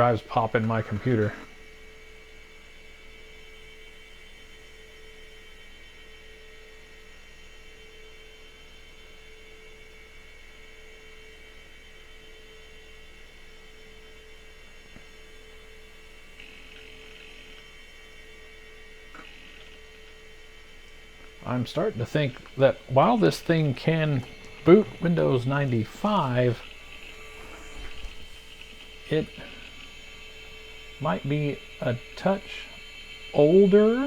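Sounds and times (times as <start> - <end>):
computer electrical hum: 0.0 - 34.0
high whine: 19.0 - 34.0.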